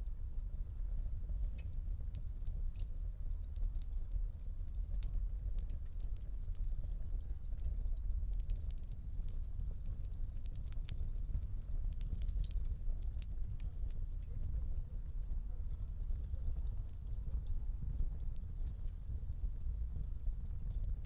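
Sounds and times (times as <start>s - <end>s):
fire low rumble: 0.0s - 21.0s
wood fire crackling and popping: 0.0s - 21.0s.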